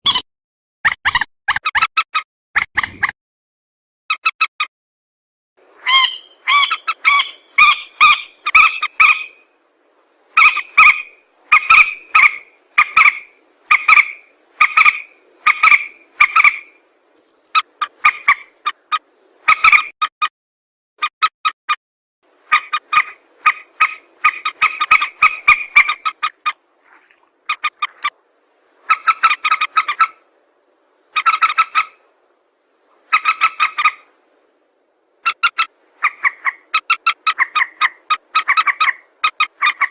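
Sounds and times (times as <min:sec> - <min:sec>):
recorded bird calls: 0:05.8 - 0:09.5, 0:10.4 - 0:20.0, 0:22.5 - 0:28.2, 0:28.8 - 0:30.3, 0:31.1 - 0:32.1, 0:32.9 - 0:34.1, 0:35.2 - 0:39.9.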